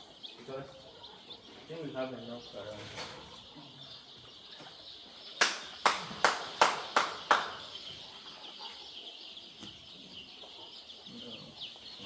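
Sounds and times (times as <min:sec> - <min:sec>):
chicks cheeping: 0:00.0 - 0:12.0.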